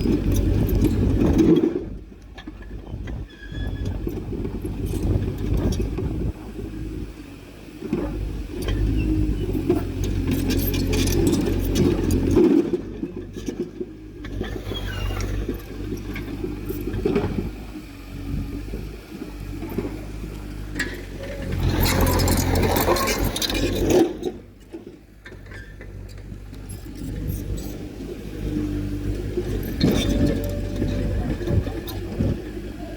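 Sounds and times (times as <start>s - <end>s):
heavy machinery diesel engine: 0.0s - 32.9s
metallic clanking and scraping: 7.9s - 17.7s, 19.5s - 32.6s.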